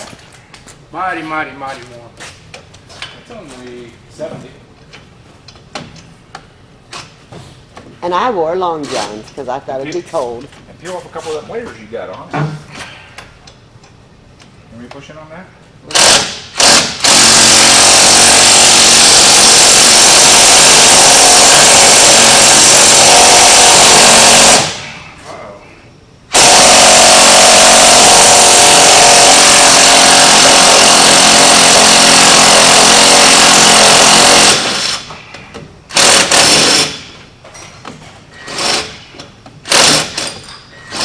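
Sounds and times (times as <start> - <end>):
impact wrench hammering: 15.9 - 25.0, 26.3 - 35.2, 35.9 - 37.2, 37.9 - 41.0.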